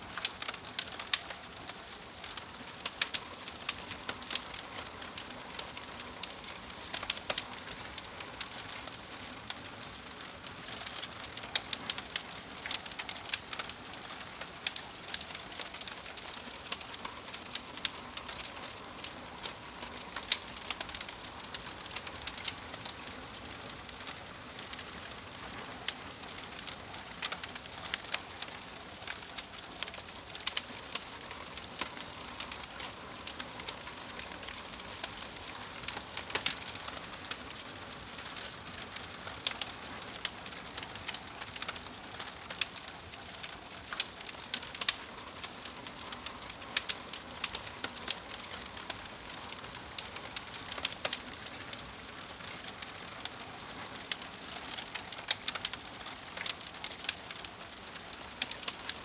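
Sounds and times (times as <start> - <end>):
fire crackling: 0.0 - 59.0.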